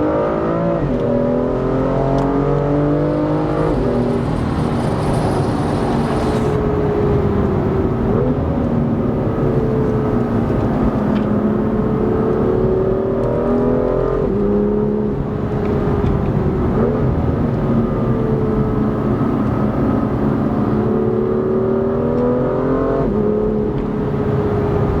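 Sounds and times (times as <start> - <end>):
car engine accelerating: 0.0 - 25.0
gear changes: 0.2 - 22.3.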